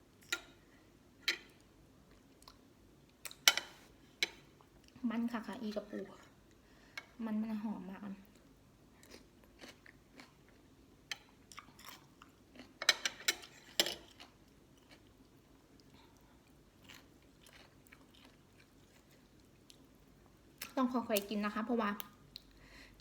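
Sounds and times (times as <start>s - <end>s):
chewing and crunching crab shell: 8.4s - 20.8s.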